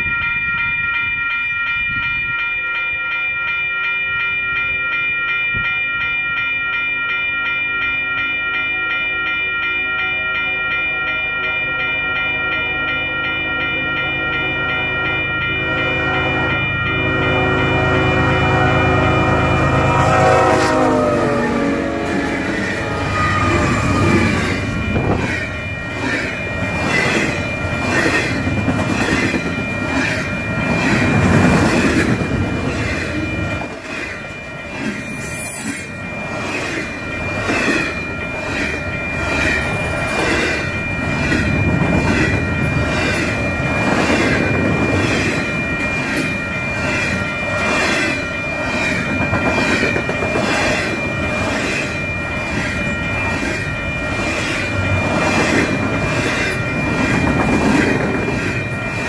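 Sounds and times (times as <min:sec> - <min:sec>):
crossing bell ringing: 0:00.0 - 0:59.0.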